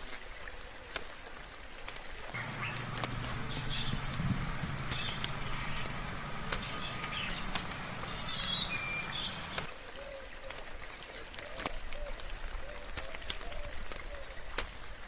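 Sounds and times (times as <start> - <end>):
rain hiss: 0.2 - 9.8
birds chirping and whistling: 2.4 - 9.7
low hum: 2.4 - 9.7
sharp clicks: 2.4 - 9.7.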